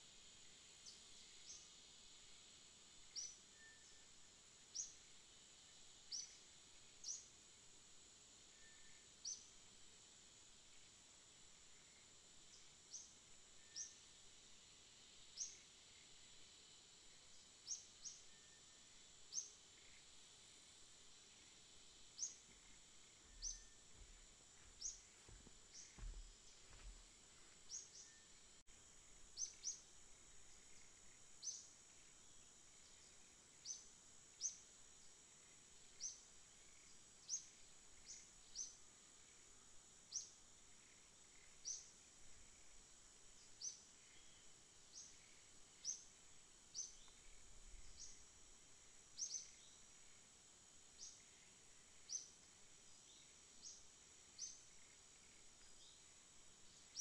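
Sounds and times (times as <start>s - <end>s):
faint high-pitched hiss: 0.0s - 57.0s
small bird chirping: 22.1s - 28.4s, 29.3s - 29.9s, 30.5s - 31.8s, 43.4s - 48.3s, 49.1s - 49.8s, 53.0s - 57.0s.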